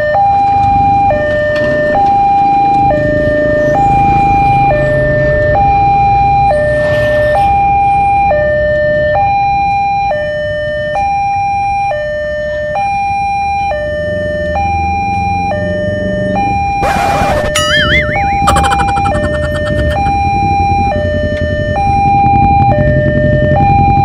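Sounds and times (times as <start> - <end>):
level crossing two-tone alarm: 17.4 - 20.4.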